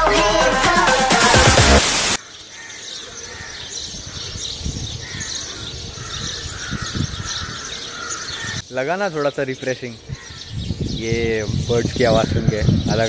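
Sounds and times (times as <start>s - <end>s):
electronic dance music: 0.0s - 2.2s
birds calling and chirping: 2.2s - 13.0s.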